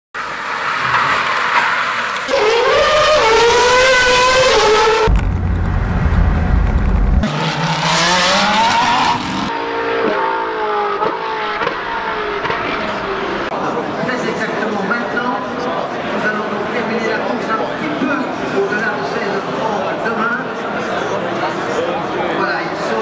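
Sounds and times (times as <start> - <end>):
race car cabin engine drone: 0.2 - 14.0
car engines revving: 0.2 - 16.8.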